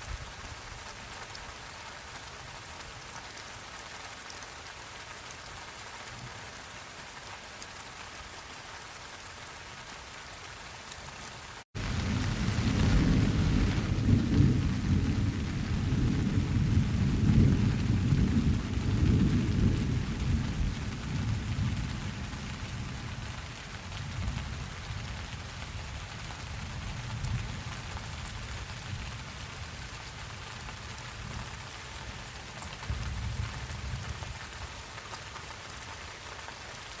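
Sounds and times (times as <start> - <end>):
steady rain falling: 0.0 - 37.0
low thunder rumble: 11.8 - 23.2.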